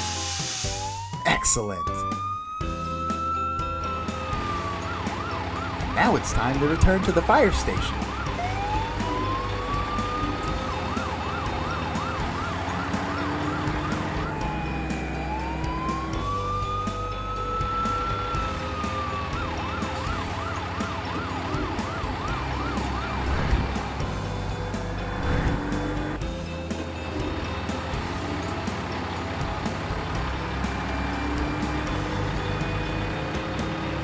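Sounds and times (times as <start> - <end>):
fire truck siren: 0.0 - 34.0.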